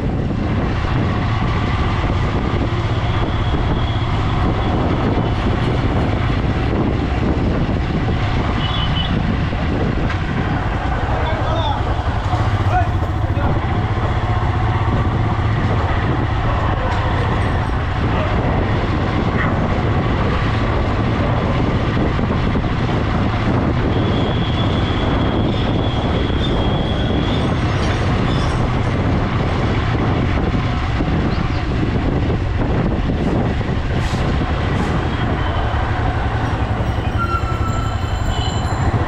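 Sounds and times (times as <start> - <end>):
motorcycle engine rumble: 0.0 - 23.9
road and wind rush: 0.0 - 39.0.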